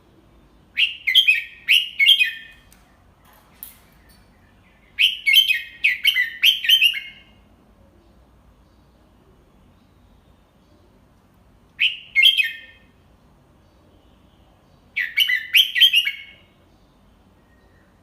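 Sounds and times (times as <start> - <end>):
bird whistled song: 0.7 - 2.8, 3.9 - 7.5, 11.8 - 13.0, 14.8 - 16.8.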